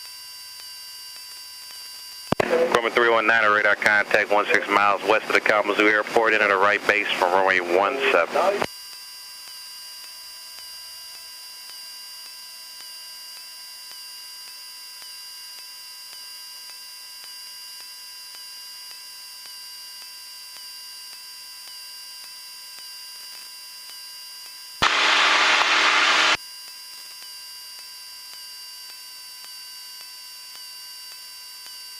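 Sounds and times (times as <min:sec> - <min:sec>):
electrical hum with high tones: 0:00.0 - 0:17.9, 0:24.8 - 0:26.4
loud rush of hiss: 0:24.8 - 0:26.4.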